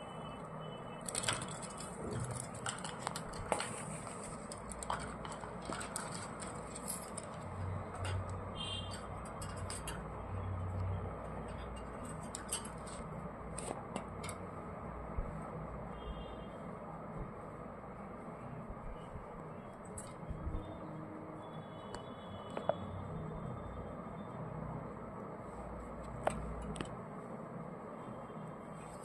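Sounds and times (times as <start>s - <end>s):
low background hum: 0.0s - 29.0s
parrots clicking and pecking: 1.0s - 10.1s.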